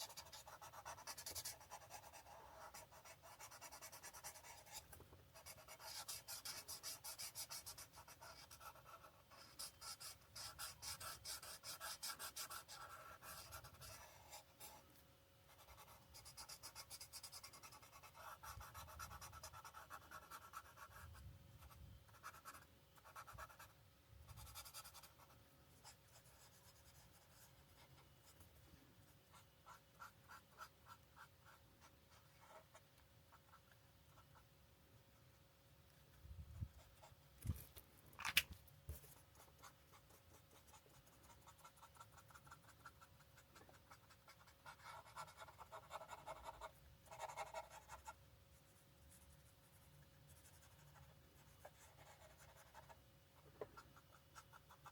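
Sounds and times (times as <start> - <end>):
marker scratching on paper: 0.0 - 14.8, 15.5 - 23.7, 38.9 - 48.2, 49.1 - 53.0
faint steady hum: 0.0 - 54.9.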